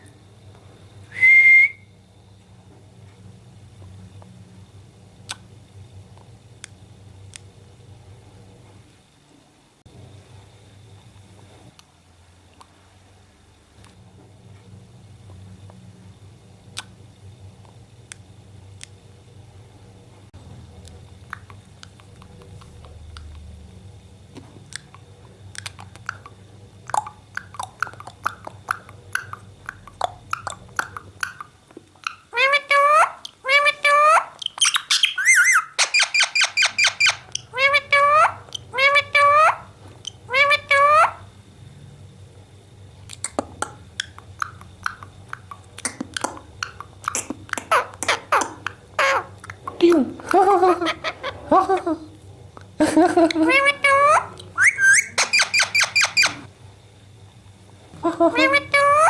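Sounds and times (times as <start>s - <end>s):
parrot clicks and chirps: 34.4s - 37.5s, 54.4s - 56.4s.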